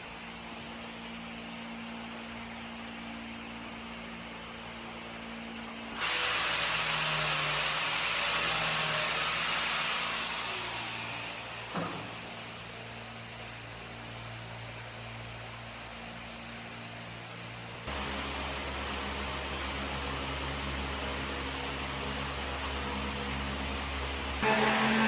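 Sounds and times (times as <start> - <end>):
loud hiss: 6.0 - 12.5.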